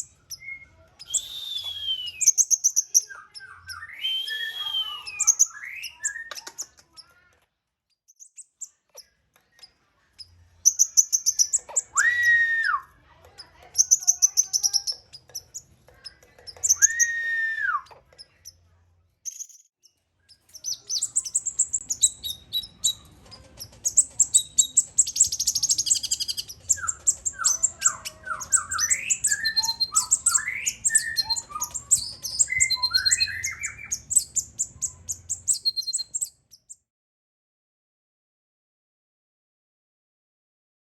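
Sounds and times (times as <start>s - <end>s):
bird chirping and trilling: 0.0s - 7.1s, 8.1s - 18.6s, 19.3s - 36.8s
long arched bird whistle: 1.1s - 2.7s, 3.8s - 6.0s, 16.8s - 17.8s.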